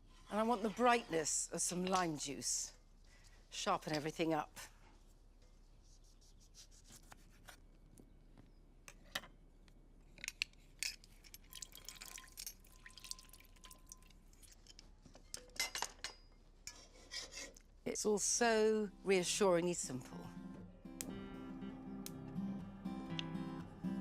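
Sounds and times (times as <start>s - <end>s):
liquid dripping and splashing: 11.2s - 14.7s.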